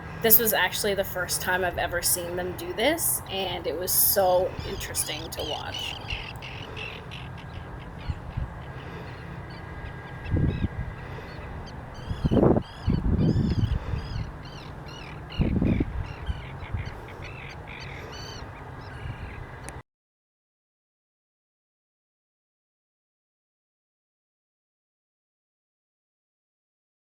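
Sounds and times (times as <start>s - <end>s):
shorebirds calling: 0.0s - 19.8s.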